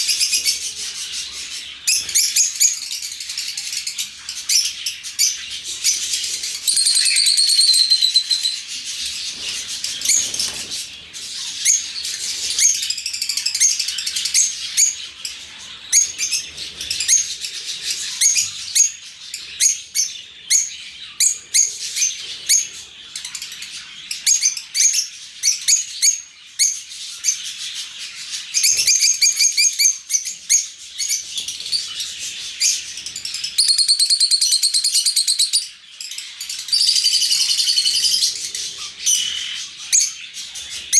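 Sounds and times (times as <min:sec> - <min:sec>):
lovebirds chattering: 0:00.0 - 0:40.9
loud rapid shrieking calls: 0:05.9 - 0:10.7, 0:36.6 - 0:40.2.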